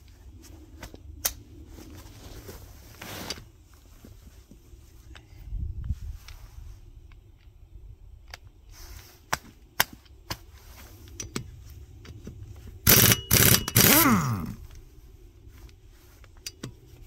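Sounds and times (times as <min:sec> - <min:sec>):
power tool bursts: 0:12.9 - 0:14.6.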